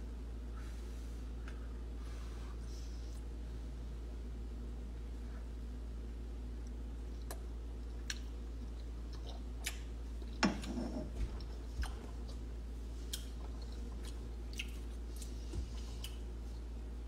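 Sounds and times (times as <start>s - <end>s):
steady low hum: 0.0s - 17.0s
person chewing food: 6.6s - 16.9s.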